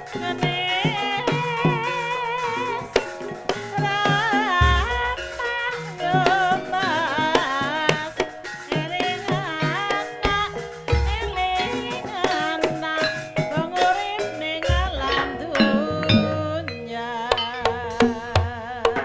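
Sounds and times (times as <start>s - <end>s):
metallophone tones: 0.0s - 18.8s
hand drum strokes: 0.0s - 19.0s
person singing with ornaments: 0.0s - 19.0s
sharp struck accents: 14.6s - 18.6s.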